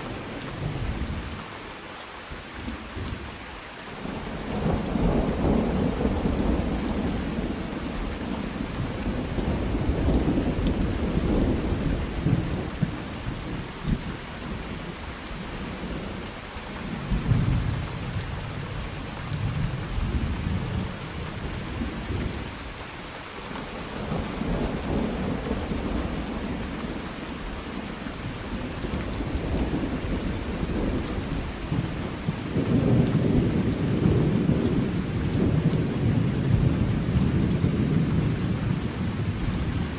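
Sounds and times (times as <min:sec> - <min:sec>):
rain hissing on a surface: 0:00.0 - 0:39.9
thunder rumbling: 0:28.5 - 0:39.9.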